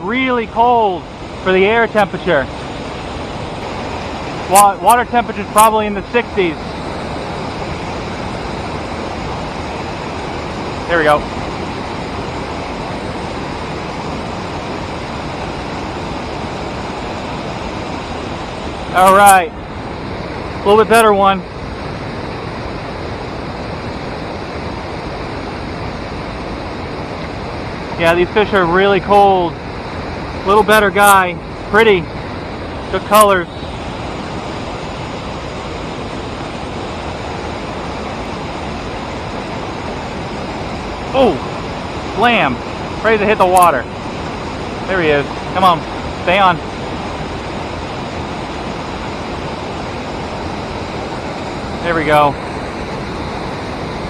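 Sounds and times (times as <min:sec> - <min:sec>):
fast-flowing river water: 0:00.0 - 0:54.0.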